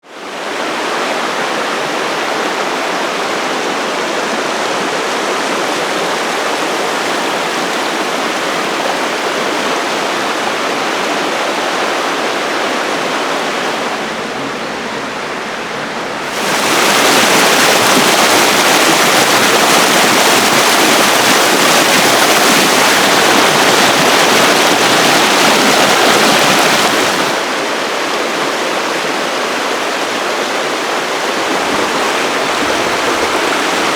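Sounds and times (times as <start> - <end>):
rushing water: 0.0 - 33.9.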